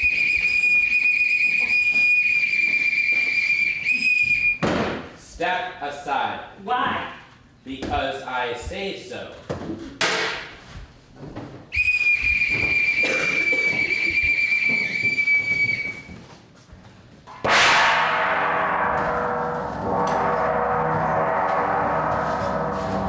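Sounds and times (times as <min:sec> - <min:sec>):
whistle long high note: 0:00.0 - 0:04.6, 0:11.8 - 0:16.2, 0:17.7 - 0:23.0
gong ringing: 0:17.5 - 0:23.0.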